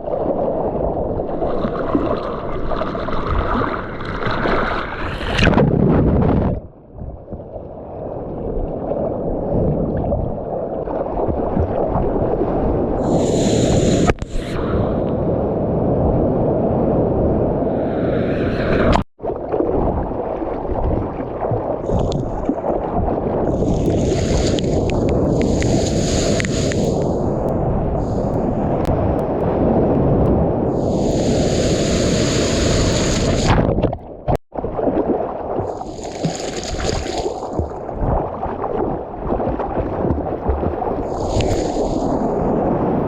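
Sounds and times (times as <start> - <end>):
water rushing and splashing: 0.0 - 5.6, 17.9 - 42.9
wind noise on microphone: 4.4 - 10.5, 11.1 - 19.1, 19.7 - 35.0, 35.6 - 43.0
spray hiss: 13.0 - 14.6, 25.4 - 27.1, 30.8 - 33.5, 41.1 - 42.1.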